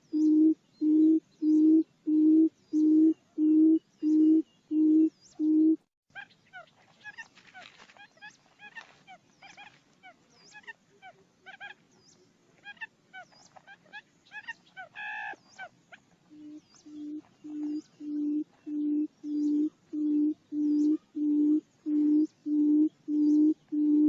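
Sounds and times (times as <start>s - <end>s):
bird chirping notes: 0.0s - 7.2s, 13.2s - 24.0s
low even hoots: 16.3s - 24.0s.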